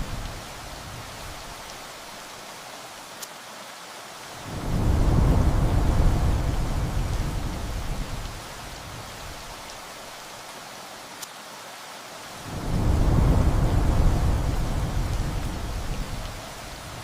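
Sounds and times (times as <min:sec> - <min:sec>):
heavy rain: 0:00.0 - 0:17.0
thunder rumbling: 0:04.4 - 0:09.5, 0:12.4 - 0:17.0.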